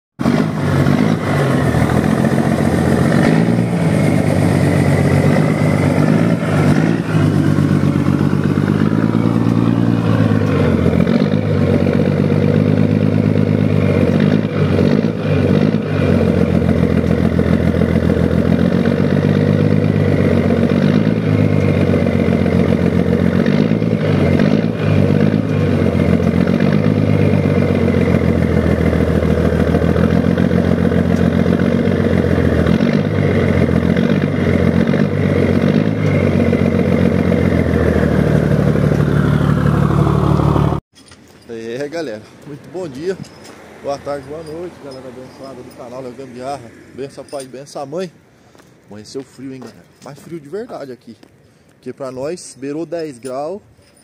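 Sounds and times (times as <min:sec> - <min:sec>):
diesel truck engine revving: 0:00.2 - 0:40.9, 0:42.0 - 0:48.2.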